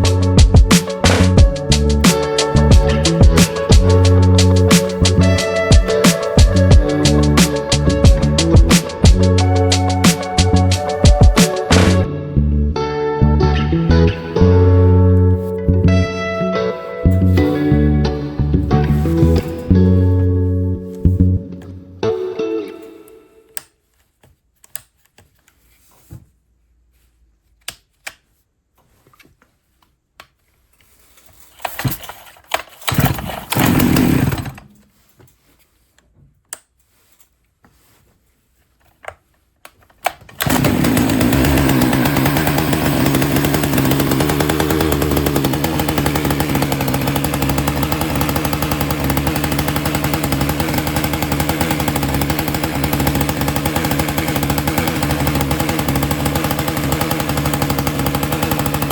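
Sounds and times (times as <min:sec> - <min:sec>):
chainsaw engine running: 0:00.0 - 0:12.1, 0:17.2 - 0:20.3, 0:32.9 - 0:34.7, 0:40.4 - 0:58.9.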